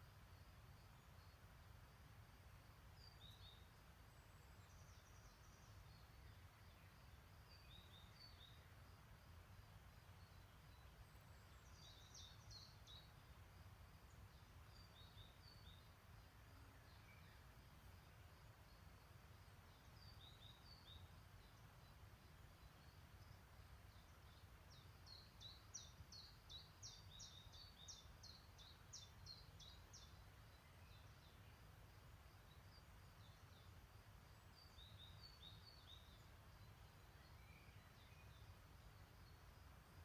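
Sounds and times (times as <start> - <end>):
low rumble of outdoor noise: 0.0 - 40.0
songbird chirping: 0.0 - 40.0.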